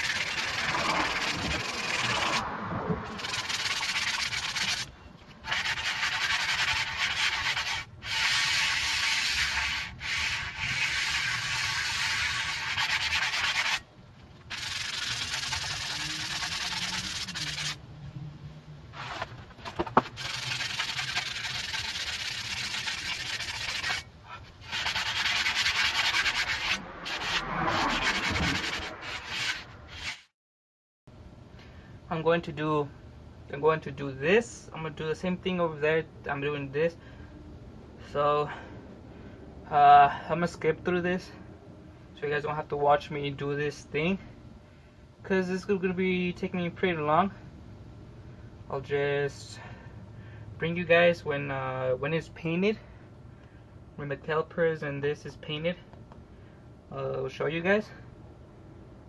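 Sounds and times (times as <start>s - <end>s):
sanding rusty metal: 0.0s - 2.4s, 3.0s - 13.8s, 14.4s - 17.8s, 19.0s - 30.3s.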